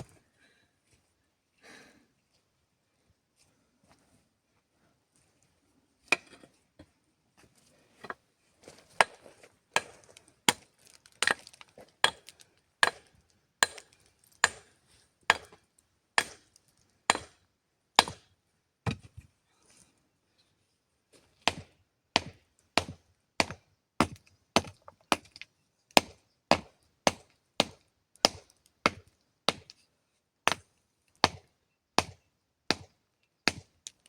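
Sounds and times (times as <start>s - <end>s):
blade chopping wood: 9.8s - 14.7s, 15.3s - 15.6s, 16.2s - 16.5s, 17.1s - 17.4s, 18.0s - 18.2s, 26.0s - 29.7s, 30.5s - 32.9s, 33.5s - 33.8s.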